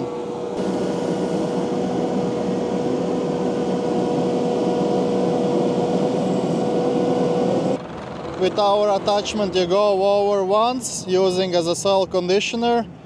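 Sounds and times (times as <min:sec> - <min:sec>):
hydraulic whine: 0:00.0 - 0:09.5
track loader diesel engine: 0:00.0 - 0:11.9.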